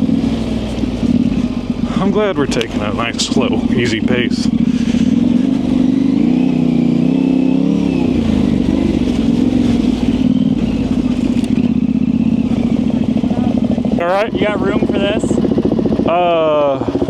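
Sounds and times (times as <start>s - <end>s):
motorcycle engine running at low revs: 0.0s - 17.0s.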